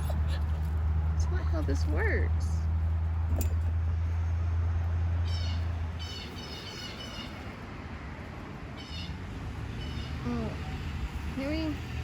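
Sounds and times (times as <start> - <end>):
songbird chirping: 5.1 - 7.6.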